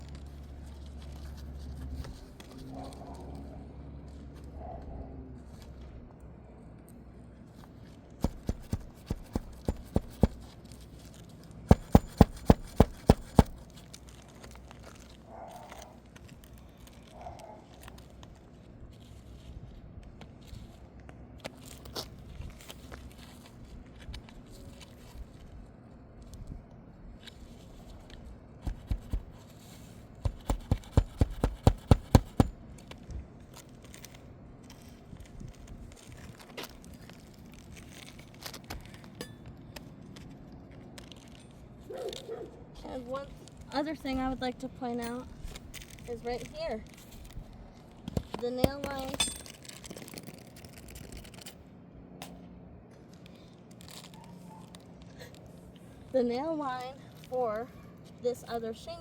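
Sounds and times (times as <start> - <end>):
hammer striking roofing nails: 8.2 - 10.5, 11.7 - 13.6, 28.7 - 29.3, 30.3 - 32.6.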